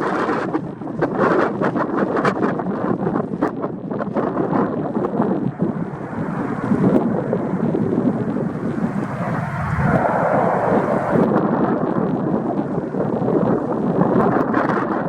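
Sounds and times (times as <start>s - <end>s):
wind buffeting microphone: 0.0s - 15.0s
turboprop engines rumbling: 4.7s - 11.4s.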